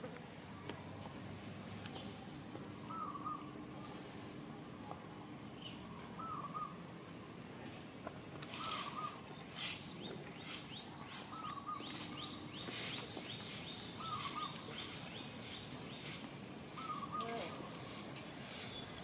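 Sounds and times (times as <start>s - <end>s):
bird warbling call: 2.9s - 3.5s, 6.2s - 6.8s, 8.2s - 9.8s, 10.4s - 15.6s, 16.7s - 17.7s
rapid falling bird chirps: 8.2s - 17.7s
quick high bird chirps: 8.5s - 16.1s.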